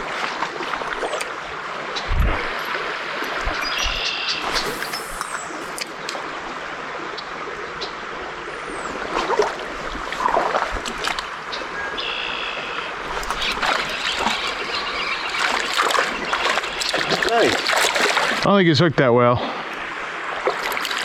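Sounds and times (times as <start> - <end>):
water rushing over riffles: 13.0 - 21.0.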